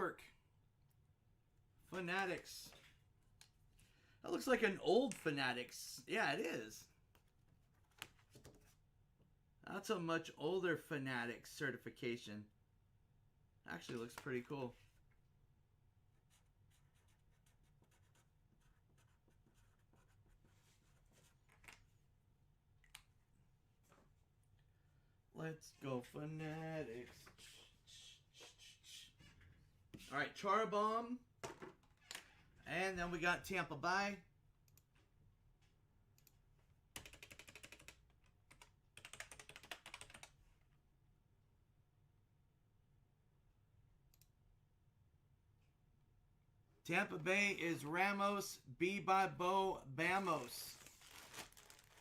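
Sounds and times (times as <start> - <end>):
faint keyboard typing: 36.2 - 40.6.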